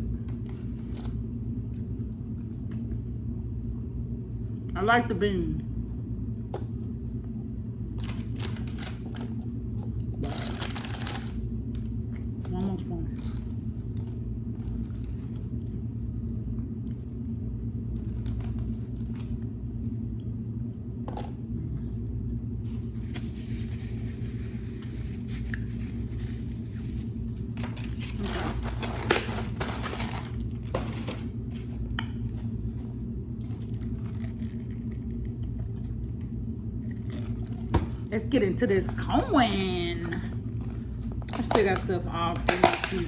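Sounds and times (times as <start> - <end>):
steady low hum: 0.0 - 43.0
crinkling and scraping: 0.2 - 1.2, 8.0 - 15.6, 17.9 - 19.4, 22.7 - 38.1, 40.0 - 43.0.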